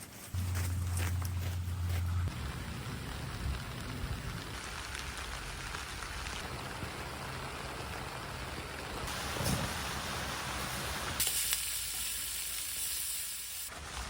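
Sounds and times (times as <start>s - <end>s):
loud low hum: 0.4s - 4.6s
steady rain falling: 1.4s - 12.2s.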